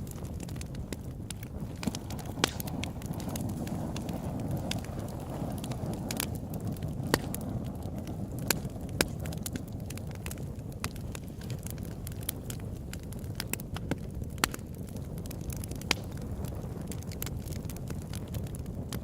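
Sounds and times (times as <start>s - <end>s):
campfire crackling and popping: 0.0s - 19.0s
flames rushing: 0.0s - 19.0s.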